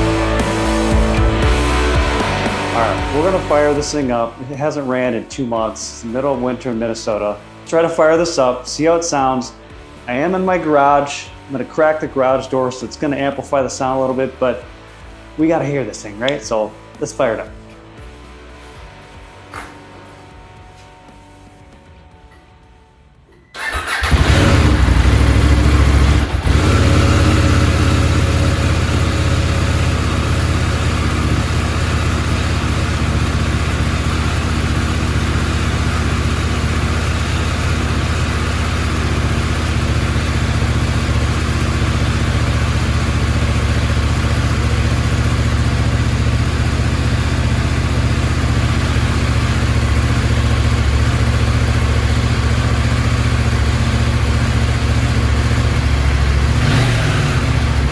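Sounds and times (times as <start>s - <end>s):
motorcycle engine idling: 0.0s - 7.3s, 23.6s - 57.9s.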